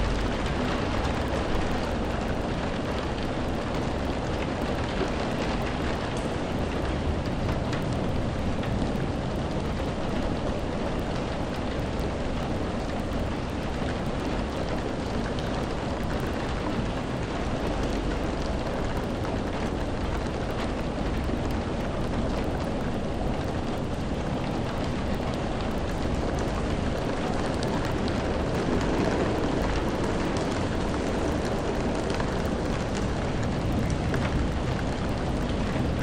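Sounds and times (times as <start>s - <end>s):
rain drop ticks: 0.0s - 36.0s
rain falling: 0.0s - 36.0s.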